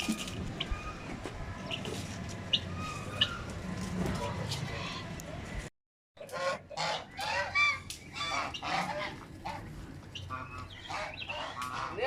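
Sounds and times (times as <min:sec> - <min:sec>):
geese honking: 0:06.2 - 0:12.0.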